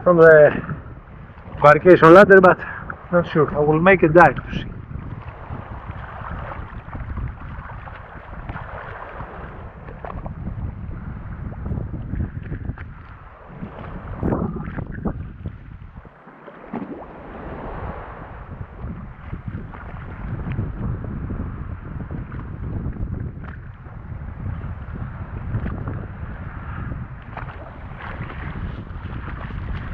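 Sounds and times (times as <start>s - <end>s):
water sloshing around boat: 0.0s - 10.8s, 11.4s - 20.8s, 27.2s - 29.9s
water splashes: 0.0s - 20.9s, 27.2s - 29.9s
wind buffeting microphone: 0.0s - 29.9s.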